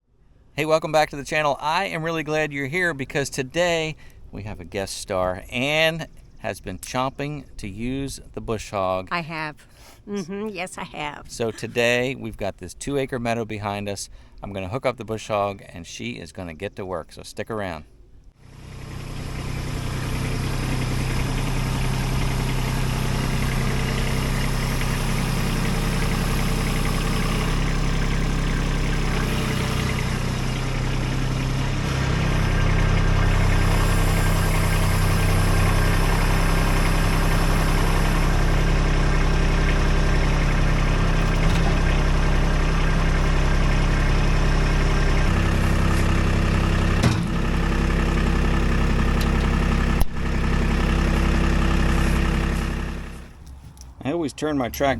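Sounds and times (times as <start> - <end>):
tractor diesel engine running: 0.0 - 15.5, 18.2 - 54.9.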